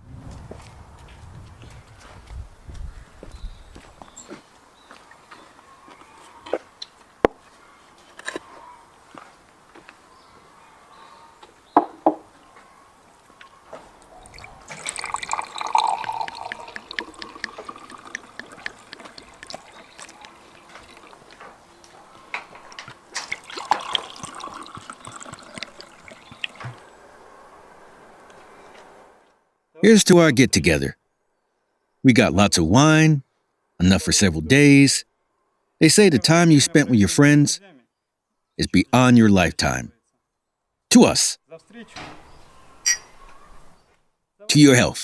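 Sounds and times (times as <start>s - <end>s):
wine pouring into glass: 14.2s - 21.2s, 23.3s - 26.8s
glasses knocking on surface: 15.7s - 19.5s.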